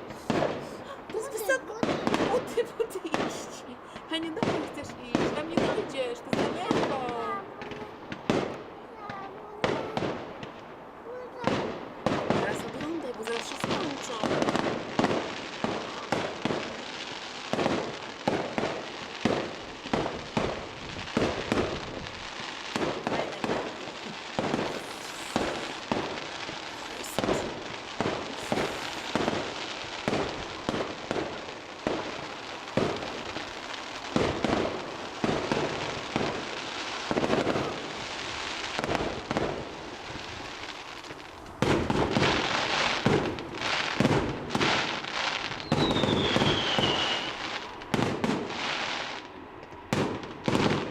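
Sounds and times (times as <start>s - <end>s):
fireworks crackling: 0.0s - 50.9s
firework shells banging: 17.5s - 48.5s.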